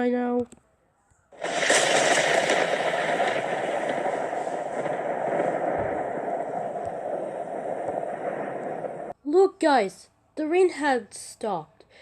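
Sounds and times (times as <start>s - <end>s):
cartoon rain and thunder: 1.4s - 9.2s.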